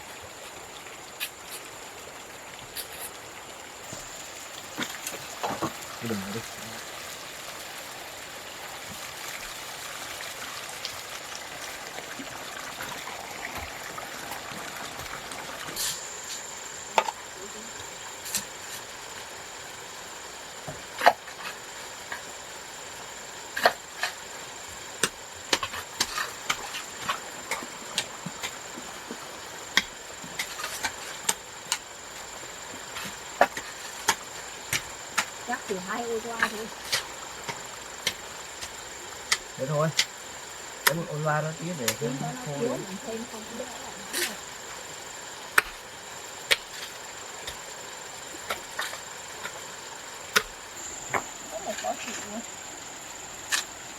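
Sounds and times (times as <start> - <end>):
high-pitched insect drone: 11.4 - 53.9.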